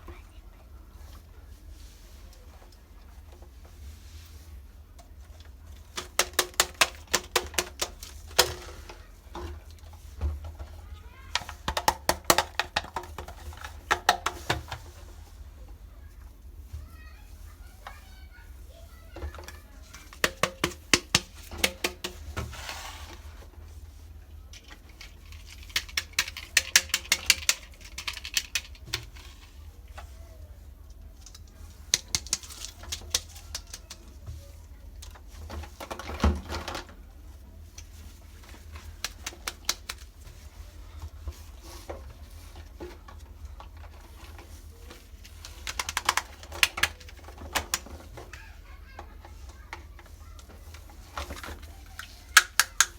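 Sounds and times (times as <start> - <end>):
plastic toy pieces clicking: 6.0 - 8.6, 24.6 - 29.1, 31.2 - 34.2, 39.0 - 40.1, 45.4 - 47.9, 51.9 - 52.9.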